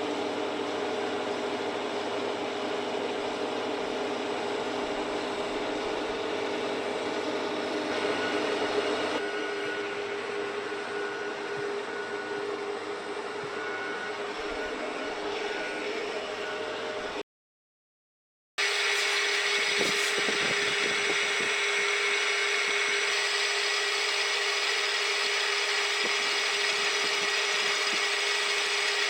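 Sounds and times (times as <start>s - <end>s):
milling machine cutting: 18.6s - 29.0s.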